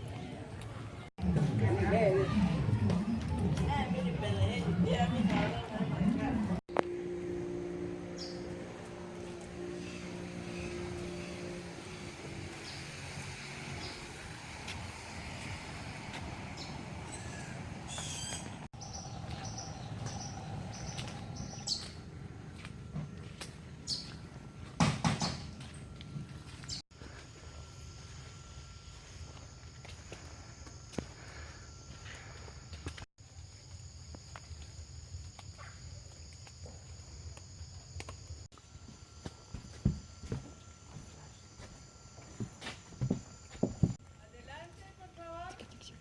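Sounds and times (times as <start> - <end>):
steady background noise: 0.0 - 26.6
low rumble: 1.2 - 24.6
birds chirping: 7.7 - 26.8.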